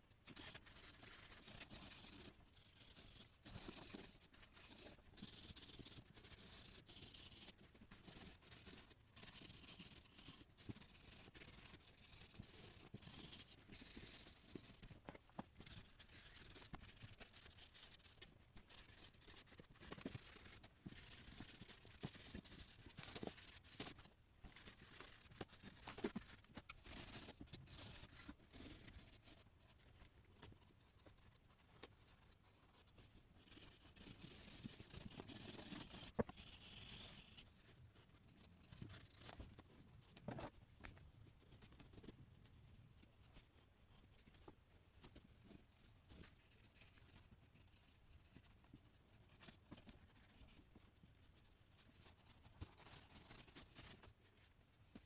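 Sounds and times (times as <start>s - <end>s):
pencil scratching on paper: 0.3s - 29.8s, 30.5s - 39.7s, 49.2s - 50.9s.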